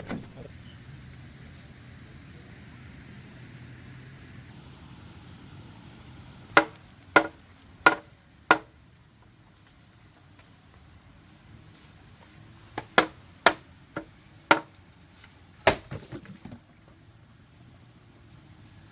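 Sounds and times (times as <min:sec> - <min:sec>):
high-pitched whine: 0:00.0 - 0:06.5.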